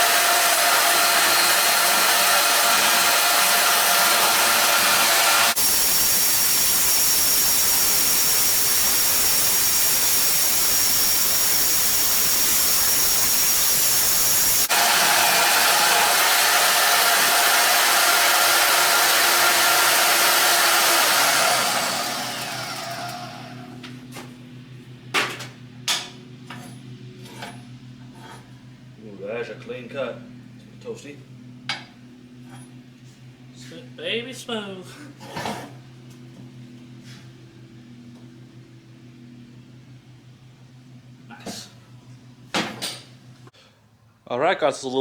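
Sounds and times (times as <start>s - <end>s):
power tool cutting steel: 0.0s - 23.8s.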